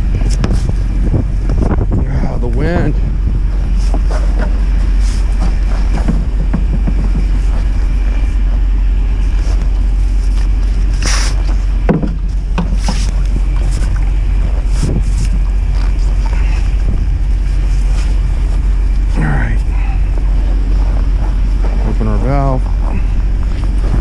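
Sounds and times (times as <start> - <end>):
wind buffeting microphone: 0.0 - 24.0
knocks and clanks: 3.9 - 8.7, 11.6 - 13.6.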